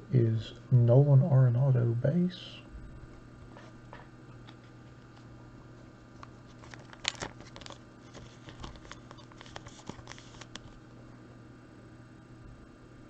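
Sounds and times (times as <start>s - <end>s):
faint electrical hum: 0.0s - 13.0s
cards clicking and rustling: 6.2s - 10.8s.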